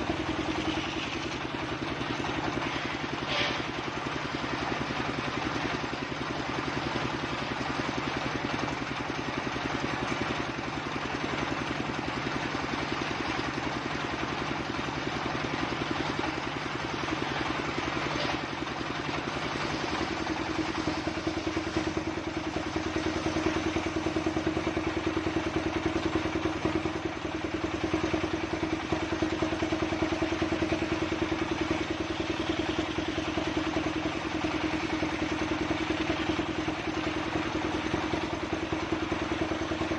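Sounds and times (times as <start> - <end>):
log saw engine clattering: 0.0 - 39.9.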